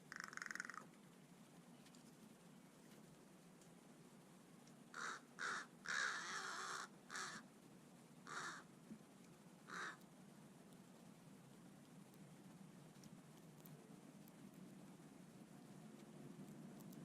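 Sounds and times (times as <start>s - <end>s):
crow cawing: 0.1s - 0.9s, 4.9s - 7.4s, 8.2s - 8.7s, 9.7s - 10.0s.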